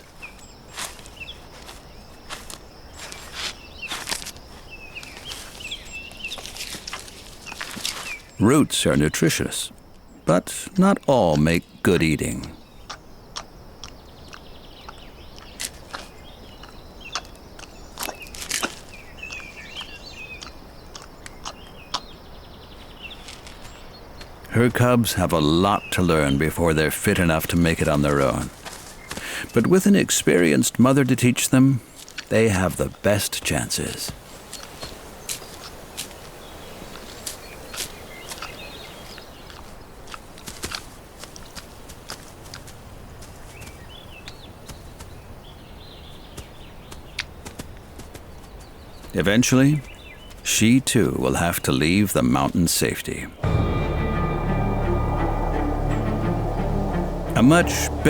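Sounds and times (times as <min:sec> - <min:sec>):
bear footsteps and crunches: 0:00.0 - 0:08.4, 0:12.8 - 0:22.2, 0:28.1 - 0:29.3, 0:34.1 - 0:49.2
outdoor background noise: 0:00.0 - 0:58.0
birds chirping: 0:04.6 - 0:40.0, 0:48.3 - 0:58.0
bear chewing roots: 0:12.9 - 0:22.1, 0:36.8 - 0:42.8.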